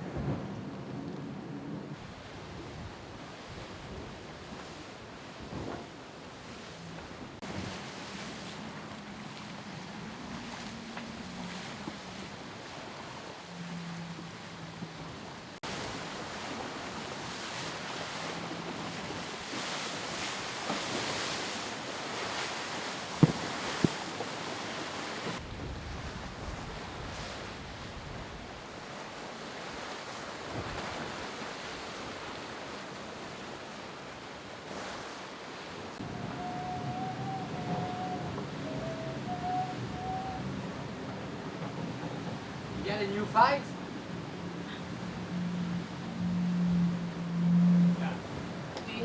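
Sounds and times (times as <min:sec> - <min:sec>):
wind and water rushing: 0:00.0 - 0:49.0
wind buffeting microphone: 0:14.1 - 0:28.9
sharp knocks: 0:23.2 - 0:24.0.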